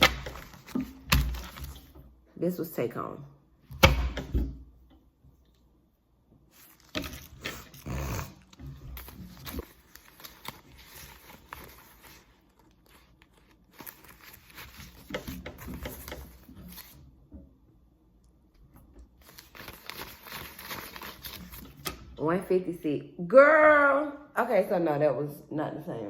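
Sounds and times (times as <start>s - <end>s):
paper banknotes rustling: 0.0s - 1.9s, 6.5s - 17.0s, 19.2s - 22.0s.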